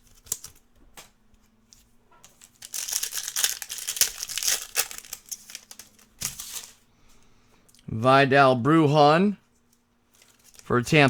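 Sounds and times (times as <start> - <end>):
foil wrapper crinkling and tearing: 0.0 - 0.6, 2.3 - 6.8, 10.1 - 10.7.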